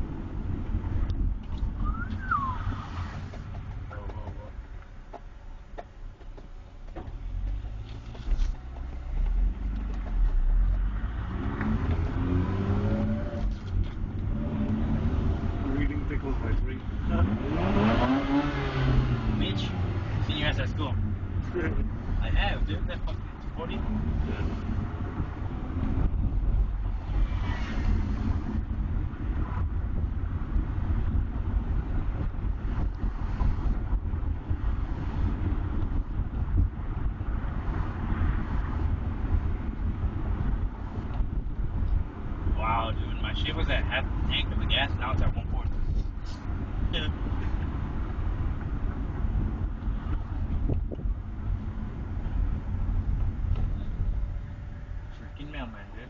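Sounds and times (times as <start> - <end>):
low rumble of car: 0.0 - 56.0
rotary engine accelerating: 7.2 - 29.7
wind buffeting microphone: 21.0 - 43.1, 44.1 - 55.1.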